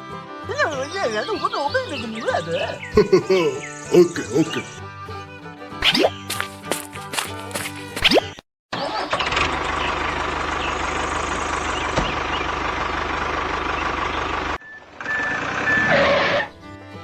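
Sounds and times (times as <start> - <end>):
truck engine running: 8.9 - 15.9.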